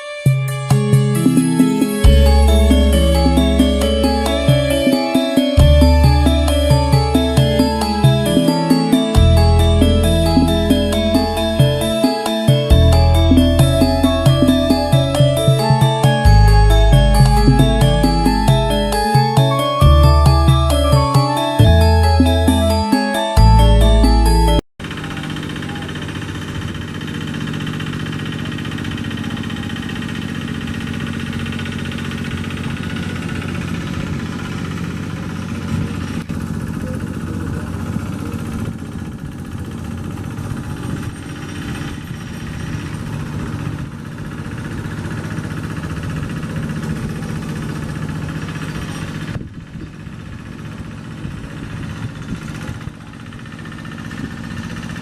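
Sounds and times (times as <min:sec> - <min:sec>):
tractor engine running: 0:24.8 - 0:55.0.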